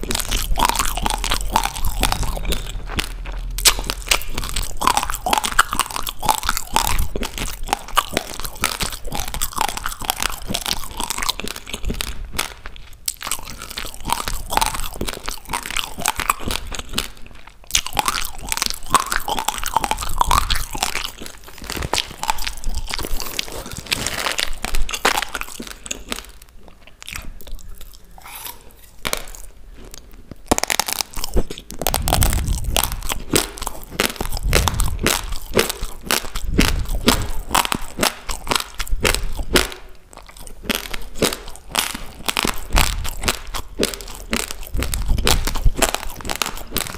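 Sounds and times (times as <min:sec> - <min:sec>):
crunchy chewing of rice: 0:00.0 - 0:46.9.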